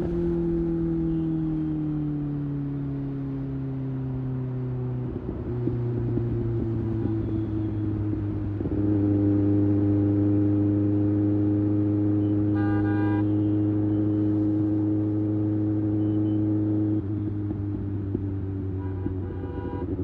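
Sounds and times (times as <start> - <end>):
vehicle horn toot: 12.5 - 13.6, 18.8 - 19.9.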